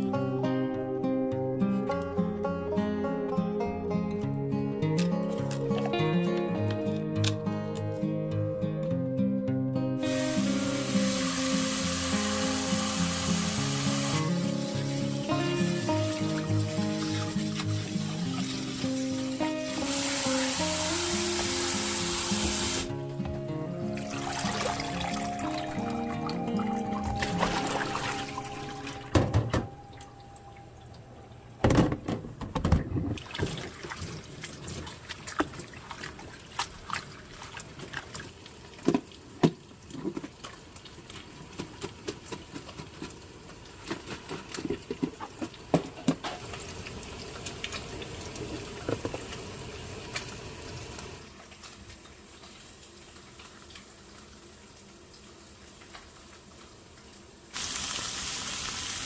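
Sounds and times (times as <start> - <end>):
tap water running into sink: 10.0 - 30.2, 44.1 - 52.6.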